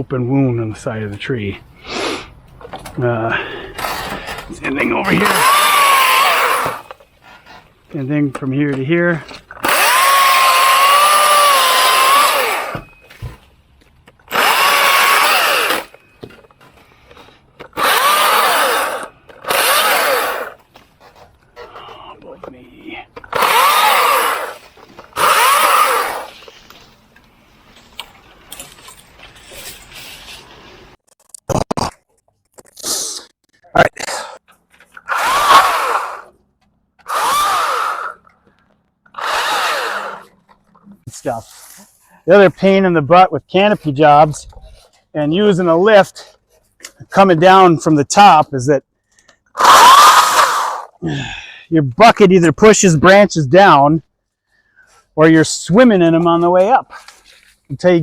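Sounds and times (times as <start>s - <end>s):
chainsaw cutting branches: 5.0s - 7.0s, 9.5s - 13.0s, 14.3s - 16.0s, 17.7s - 20.7s, 23.2s - 26.8s, 34.0s - 36.4s, 37.0s - 38.4s, 39.1s - 40.4s, 49.5s - 51.0s.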